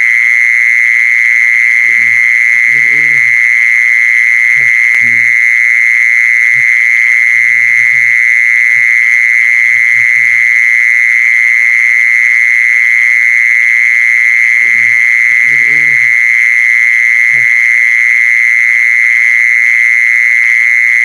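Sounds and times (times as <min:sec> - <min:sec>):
faint low bird calls: 0:01.8 - 0:03.4, 0:14.6 - 0:16.2.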